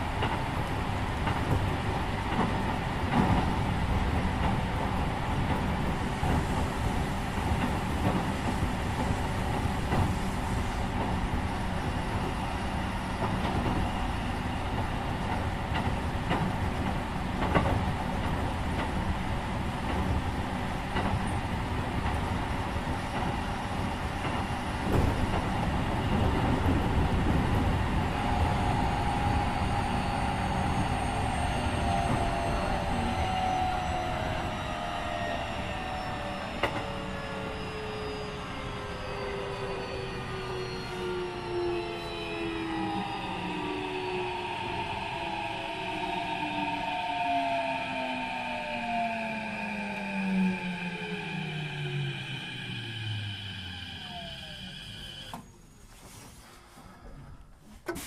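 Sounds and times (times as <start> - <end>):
train wheels on rails: 0.0 - 56.9
train motor whine falling in pitch: 35.3 - 55.8.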